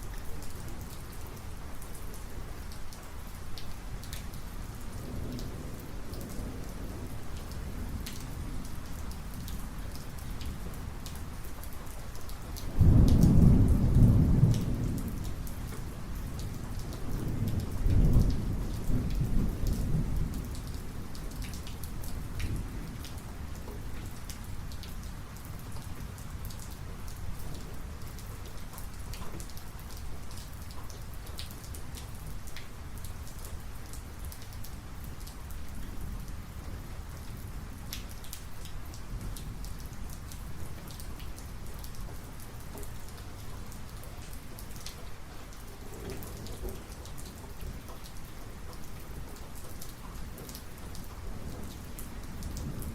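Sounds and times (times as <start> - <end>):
steady rain: 0.0 - 52.9
raindrop ticks: 5.2 - 52.9
thunder crack and rumble: 12.7 - 23.1.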